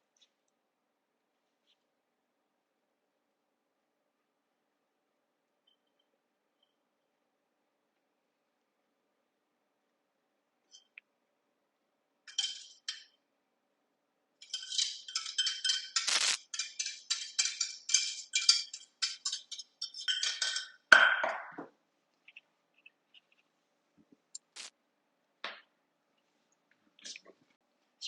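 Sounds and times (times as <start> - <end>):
spoon scraping a saucepan: 12.3 - 13.1, 14.4 - 20.9
spoon knocking on pan: 14.4 - 21.6.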